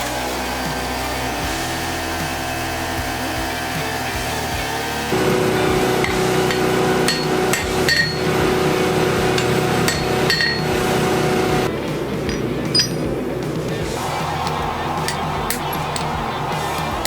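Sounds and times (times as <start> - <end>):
steady hum: 5.1 - 17.0
hammer striking steel on anvil: 5.4 - 13.2, 15.0 - 17.0.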